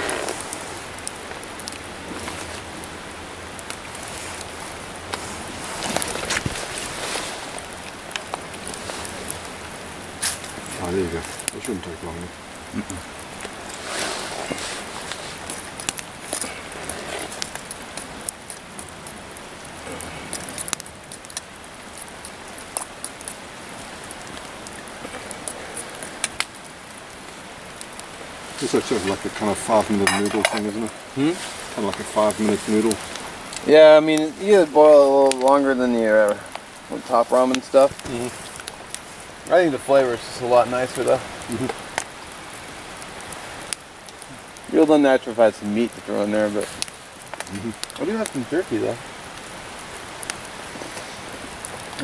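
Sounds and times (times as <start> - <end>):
rain falling: 0.0 - 52.0.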